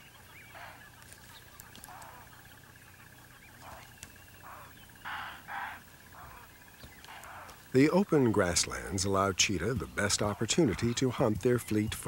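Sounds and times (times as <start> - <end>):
harsh caw-like bird calls: 0.0 - 7.8.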